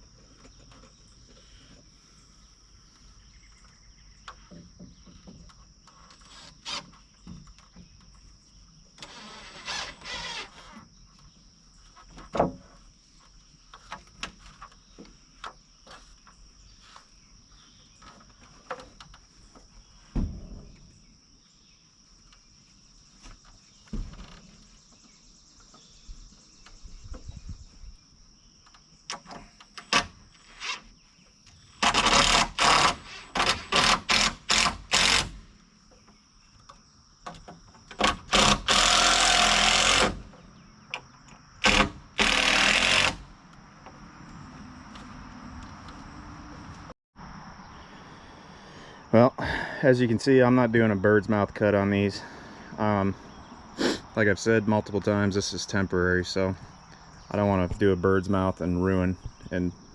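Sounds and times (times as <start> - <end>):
high insect chirring: 0.0 - 20.1, 20.8 - 46.7
lumber knocking and clunking: 12.1 - 12.7, 20.1 - 21.0
short rasping burst: 31.8 - 35.5, 38.0 - 40.3, 41.6 - 43.4.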